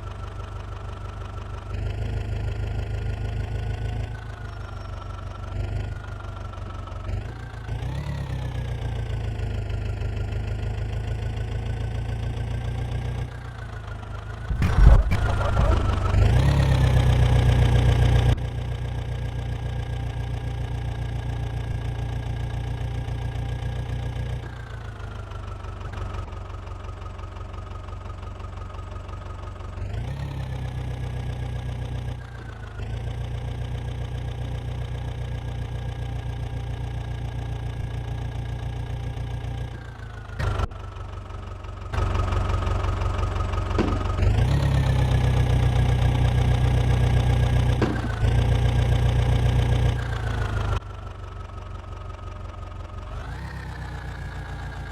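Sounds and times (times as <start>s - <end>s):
diesel engine of digging machinery: 0.0s - 54.9s.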